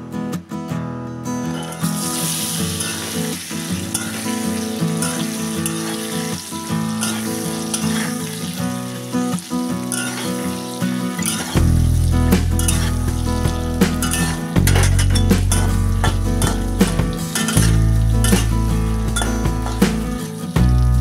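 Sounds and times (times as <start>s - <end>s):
metal spatula scraping: 1.5s - 8.5s, 9.8s - 11.7s, 12.3s - 20.0s
vegetables sizzling in hot oil: 1.5s - 21.0s.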